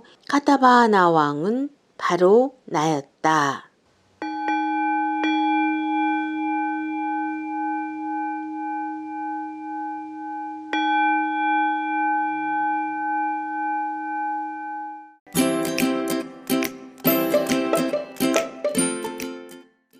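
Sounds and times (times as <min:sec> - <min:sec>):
singing bowl ringing: 0:04.2 - 0:15.2.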